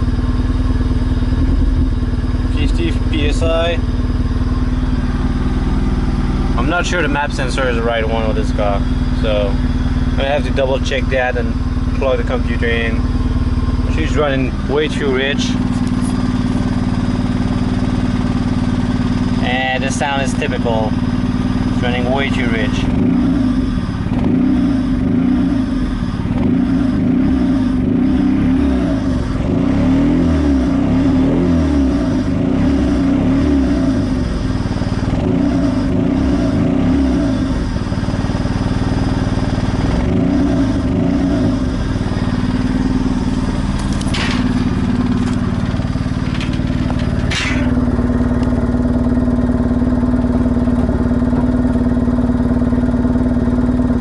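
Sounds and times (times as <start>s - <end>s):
car engine running unevenly: 0.0s - 54.0s.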